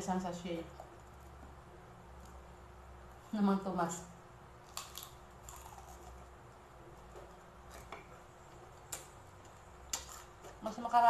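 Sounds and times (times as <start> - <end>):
soft chewing of crispy pork: 4.6 - 10.6.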